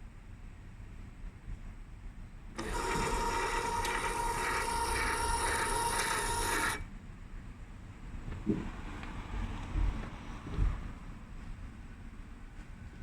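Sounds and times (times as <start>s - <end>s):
electric motor whining: 2.6s - 6.8s.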